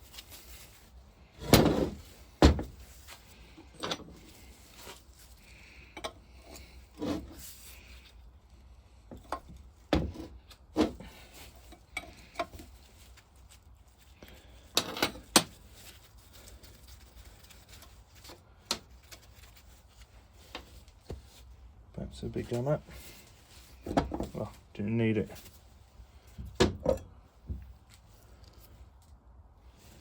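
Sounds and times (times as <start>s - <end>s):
spanner and metal parts clinking: 14.7s - 15.5s.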